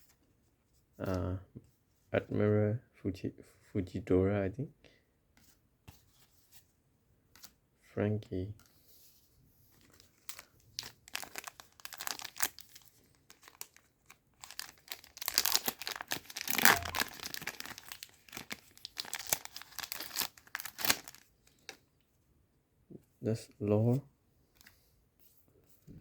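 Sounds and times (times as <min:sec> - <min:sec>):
foil wrapper crinkling: 0:10.1 - 0:21.8.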